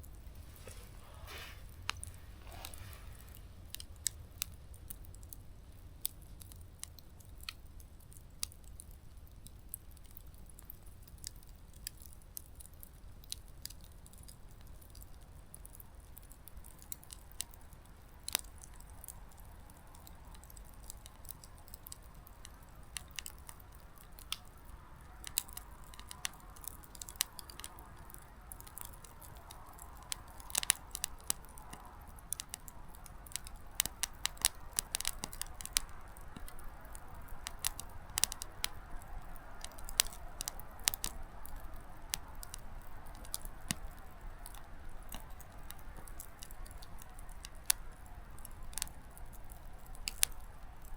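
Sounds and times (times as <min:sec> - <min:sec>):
soft rush of flame: 0:00.0 - 0:04.8
campfire crackling: 0:00.0 - 0:50.9.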